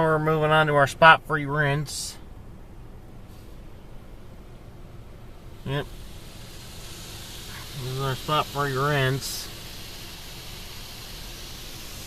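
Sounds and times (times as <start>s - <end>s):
car wash rinse running: 5.6s - 12.0s.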